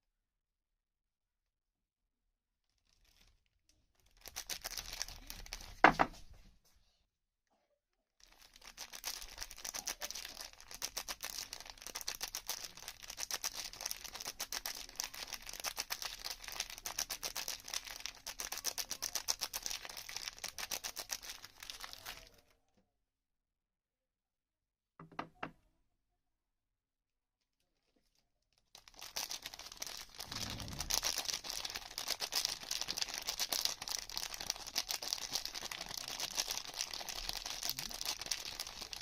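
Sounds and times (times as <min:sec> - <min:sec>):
packaging crinkling and tearing: 0:02.6 - 0:06.0, 0:08.2 - 0:22.4, 0:28.1 - 0:39.0.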